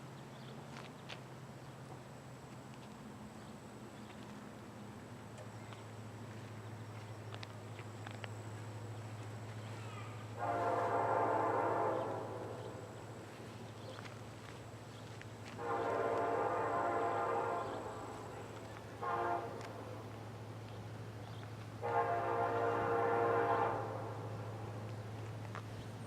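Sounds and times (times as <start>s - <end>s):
steady low hum: 0.0s - 26.0s
locomotive air horn blasts: 10.2s - 13.4s, 15.5s - 20.3s, 21.7s - 24.9s.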